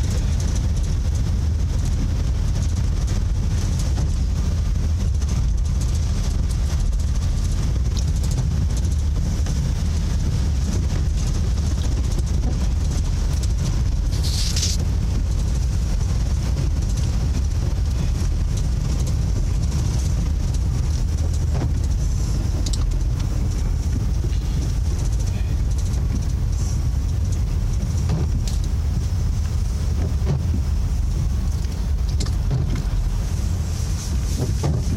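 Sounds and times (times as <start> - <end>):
vehicle rumble from inside: 0.0 - 34.9
brief hiss: 14.2 - 14.8.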